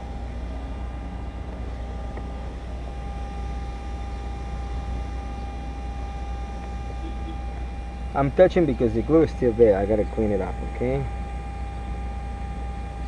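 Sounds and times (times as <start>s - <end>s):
steady low hum: 0.0s - 13.0s
thin steady tone: 0.0s - 13.0s.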